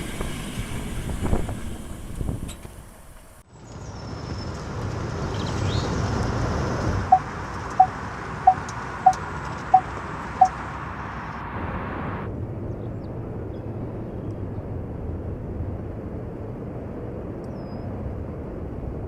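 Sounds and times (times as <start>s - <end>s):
steady rushing noise: 0.0s - 3.4s, 6.0s - 19.0s
short electronic beeps: 7.1s - 10.6s.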